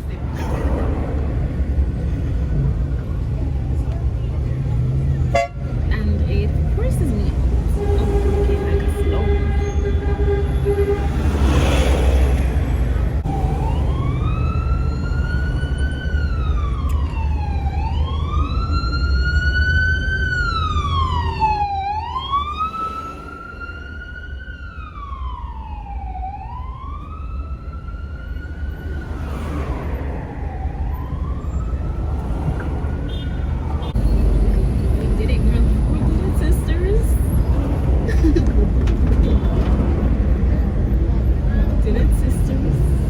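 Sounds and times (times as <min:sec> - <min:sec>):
low traffic rumble: 0:00.0 - 0:43.0
emergency siren wailing: 0:06.8 - 0:37.7.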